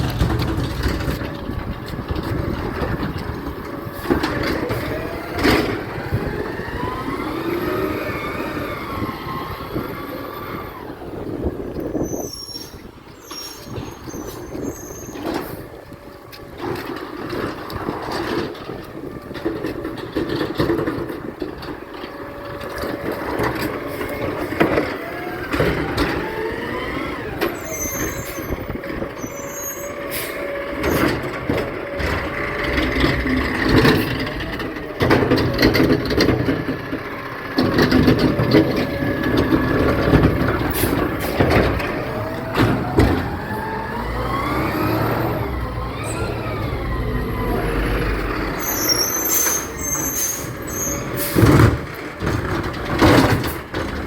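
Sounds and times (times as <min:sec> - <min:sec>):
knocks and clanks: 0:00.0 - 0:05.9, 0:30.8 - 0:44.4, 0:49.3 - 0:54.0
garbage truck engine revving: 0:00.0 - 0:12.0, 0:16.6 - 0:54.0.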